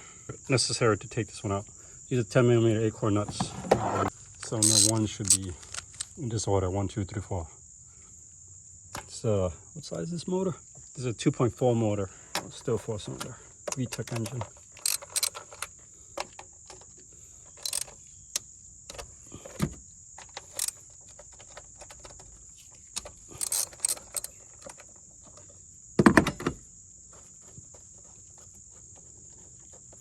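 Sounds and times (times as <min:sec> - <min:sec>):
insect chirring: 0:04.1 - 0:26.0
metallic clicks of hand tools: 0:04.4 - 0:06.2, 0:13.7 - 0:15.7, 0:17.6 - 0:18.0, 0:20.2 - 0:20.8, 0:22.9 - 0:24.8.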